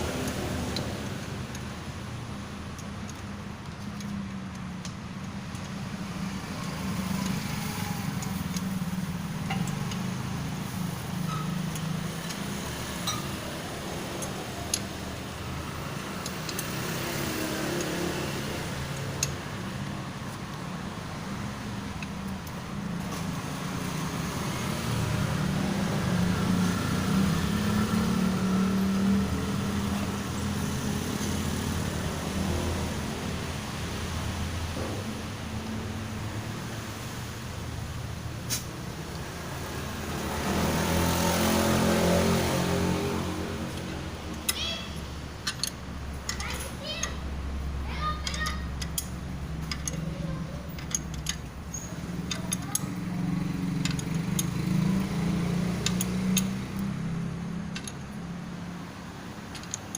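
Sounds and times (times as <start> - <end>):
sharp clicks: 16.1 - 18.2, 48.2 - 50.1, 50.7 - 53.1, 53.7 - 58.2, 59.4 - 59.9
low engine-like rumble: 42.9 - 59.9.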